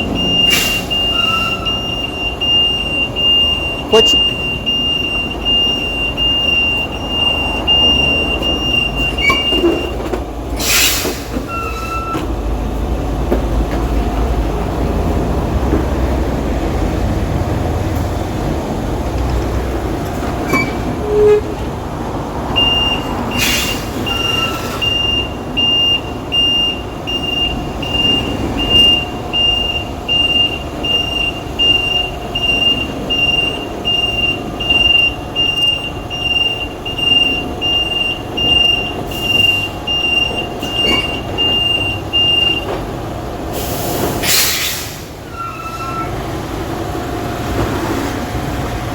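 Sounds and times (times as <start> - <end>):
truck reversing alarm beeping: 0.0 - 14.2, 20.4 - 21.6, 22.5 - 46.2
diesel engine rumble: 0.0 - 48.9.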